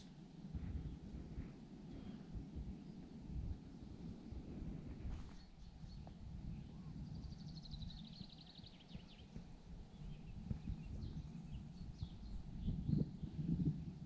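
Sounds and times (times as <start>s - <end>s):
low rumbling noise: 0.0s - 14.0s
faint bird chirps: 5.1s - 14.0s.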